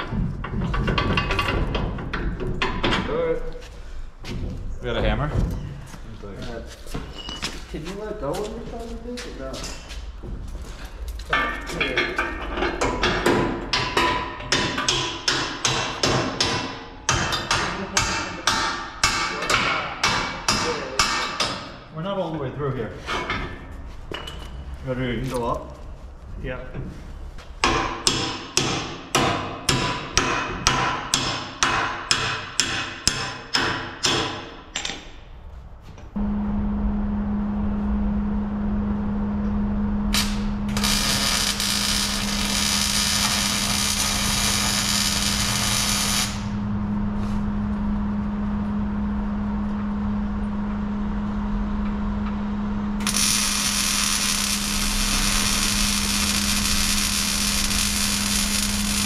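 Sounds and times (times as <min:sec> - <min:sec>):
steady low hum: 0:33.6 - 0:59.0.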